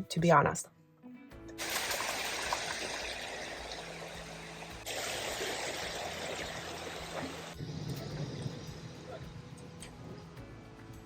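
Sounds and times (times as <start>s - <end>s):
running water: 1.6s - 9.1s.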